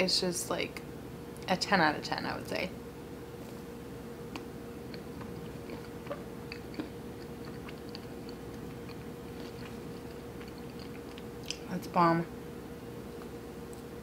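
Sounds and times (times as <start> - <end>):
faint steady hum: 0.0 - 14.0
close chewing mouth noises: 4.3 - 11.6.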